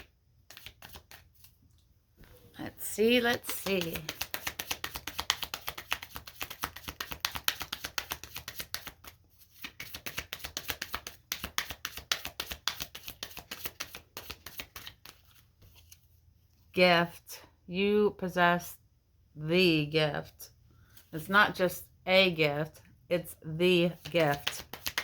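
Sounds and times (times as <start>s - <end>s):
cards being shuffled: 0.0s - 1.6s, 3.0s - 16.1s, 23.9s - 25.0s.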